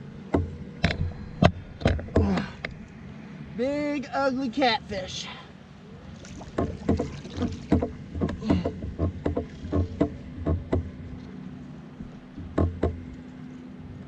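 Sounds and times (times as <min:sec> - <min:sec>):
knocks and thumps on a kayak: 0:00.3 - 0:02.8, 0:06.3 - 0:11.4, 0:12.0 - 0:13.2.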